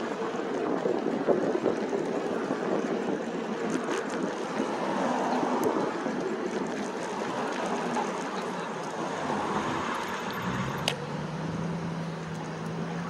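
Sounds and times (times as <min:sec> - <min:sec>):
road noise: 0:00.0 - 0:13.0
wind noise on microphone: 0:00.0 - 0:13.0.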